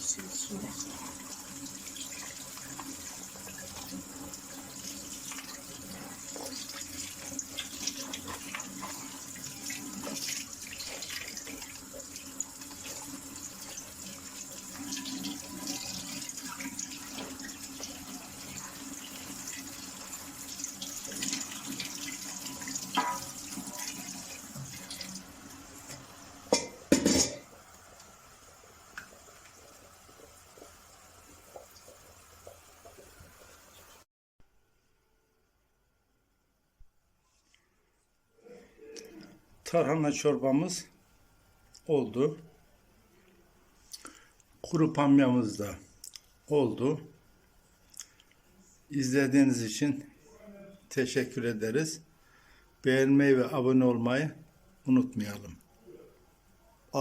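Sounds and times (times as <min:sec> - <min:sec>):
tap water running into colander: 0:00.0 - 0:34.0.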